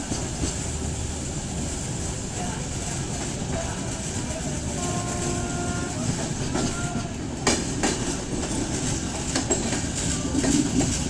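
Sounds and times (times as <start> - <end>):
train rumbling: 0.0 - 11.0
wheels clacking over rail joints: 6.0 - 11.0.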